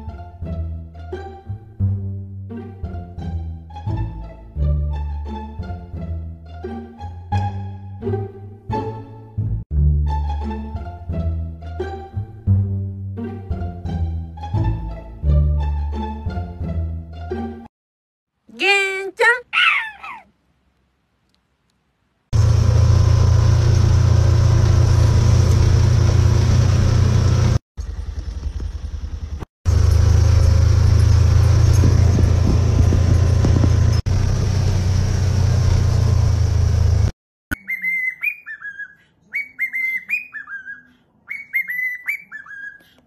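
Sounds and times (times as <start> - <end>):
low-pitched engine running: 22.4 - 37.1
cockatiel whistling: 37.5 - 43.0.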